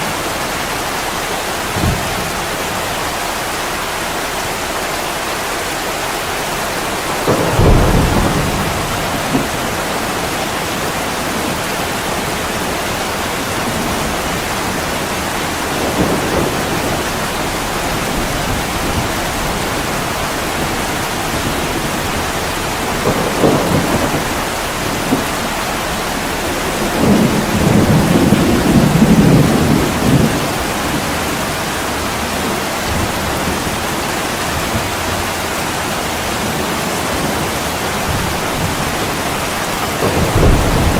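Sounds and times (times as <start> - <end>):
heavy rain on a window: 0.0 - 40.9
thunder rumbling: 0.0 - 40.9.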